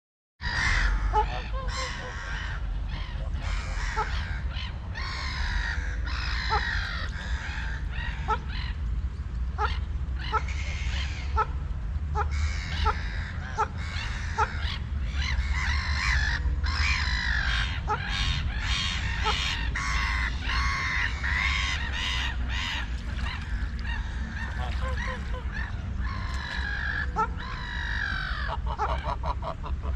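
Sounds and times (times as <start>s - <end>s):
steady low rumble: 0.5s - 29.9s
long drawn-out bird call: 9.6s - 29.9s
harsh bird calls: 12.2s - 29.4s.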